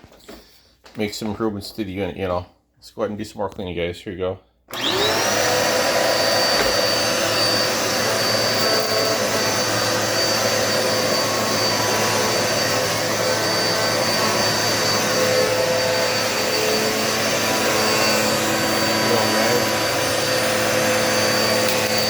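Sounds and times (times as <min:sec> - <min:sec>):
vacuum cleaner running: 0:04.7 - 0:22.0.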